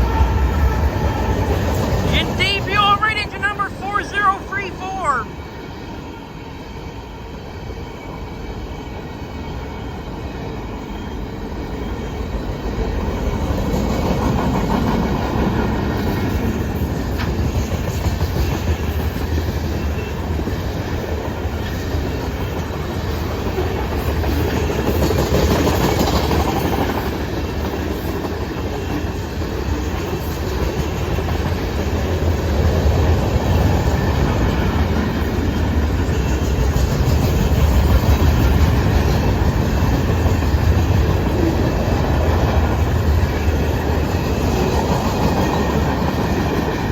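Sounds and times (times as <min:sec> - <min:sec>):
freight train cars rolling: 0:00.0 - 0:05.2.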